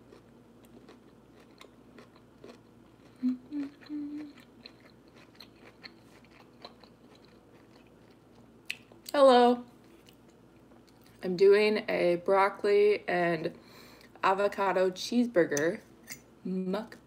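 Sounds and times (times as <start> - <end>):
person chewing food: 0.0 - 9.1, 9.8 - 11.2
person humming: 3.2 - 4.4.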